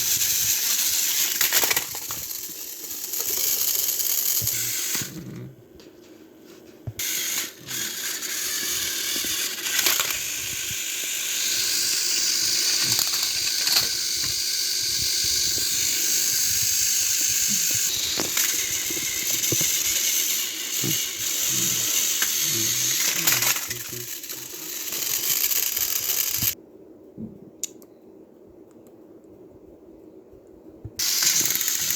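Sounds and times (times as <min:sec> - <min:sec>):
toy train motors whirring: 0:00.0 - 0:05.4, 0:07.0 - 0:26.6, 0:31.0 - 0:31.9
gear clatter: 0:17.9 - 0:26.6.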